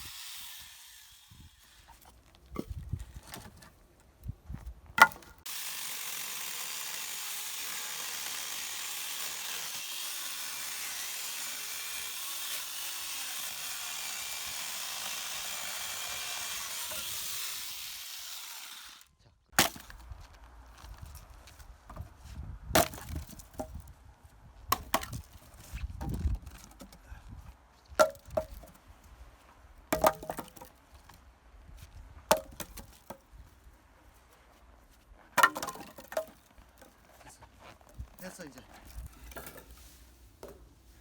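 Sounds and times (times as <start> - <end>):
power saw cutting firewood: 0.0 - 2.0, 5.4 - 19.8.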